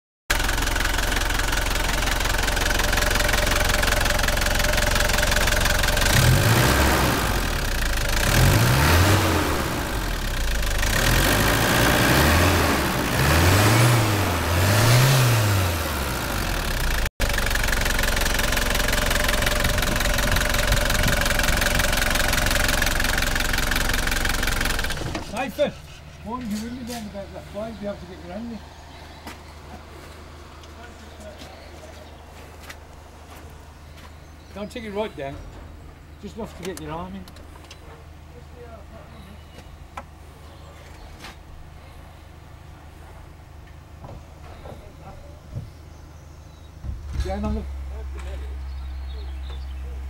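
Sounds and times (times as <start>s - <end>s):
car engine idling and revving: 0.3s - 31.5s, 46.8s - 50.0s.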